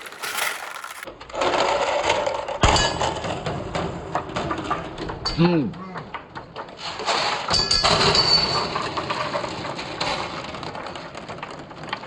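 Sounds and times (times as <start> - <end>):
marbles rolling and clattering: 0.0 - 1.1.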